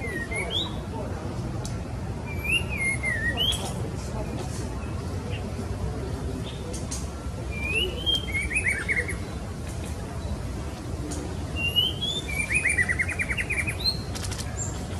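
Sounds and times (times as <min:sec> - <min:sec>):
bird whistling calls: 0:02.2 - 0:03.8, 0:07.5 - 0:09.3, 0:11.6 - 0:14.1.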